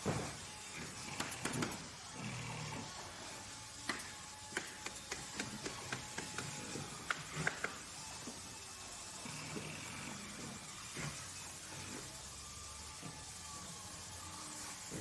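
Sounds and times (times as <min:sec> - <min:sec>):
sharp clicks and knocks: 0:03.9 - 0:07.8.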